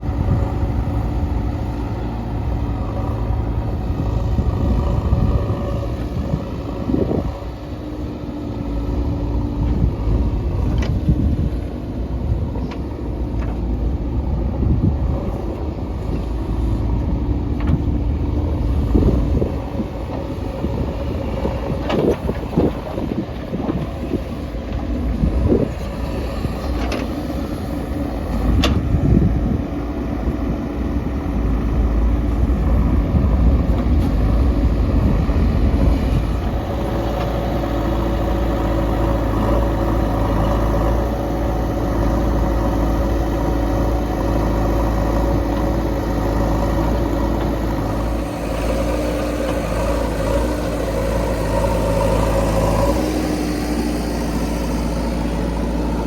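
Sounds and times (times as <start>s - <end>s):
diesel engines rumbling: 0.0s - 56.0s.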